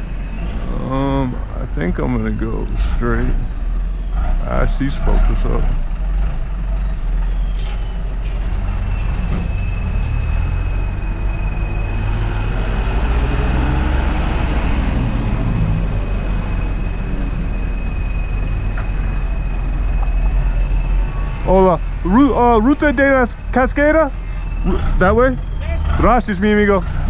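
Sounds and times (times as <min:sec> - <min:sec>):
high squeal: 0:05.0 - 0:21.6
motor vehicle passing: 0:08.2 - 0:27.0.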